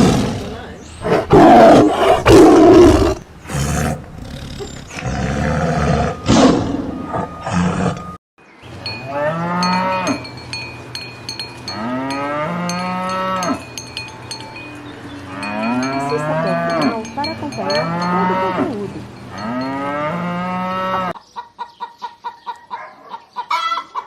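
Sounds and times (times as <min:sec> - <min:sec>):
cowbell clanking: 0:08.8 - 0:21.1
cattle mooing: 0:17.6 - 0:21.2.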